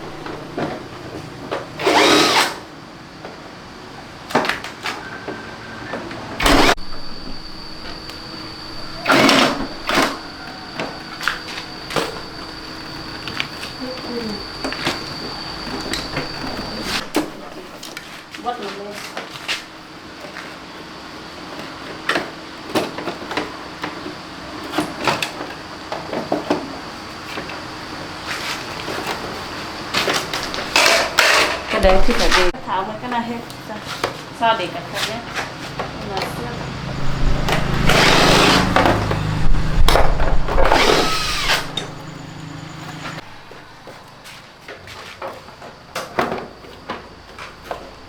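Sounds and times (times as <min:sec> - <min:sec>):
power driver motor whine: 0:00.0 - 0:00.8, 0:06.4 - 0:17.9, 0:31.8 - 0:32.7, 0:36.0 - 0:43.6
faint hum: 0:06.4 - 0:18.0, 0:36.1 - 0:43.9.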